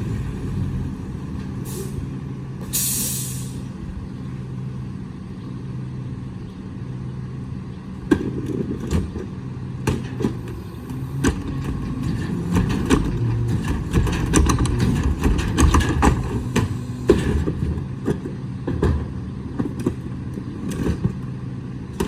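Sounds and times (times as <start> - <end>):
metal clanks and knocks: 11.1 - 20.0.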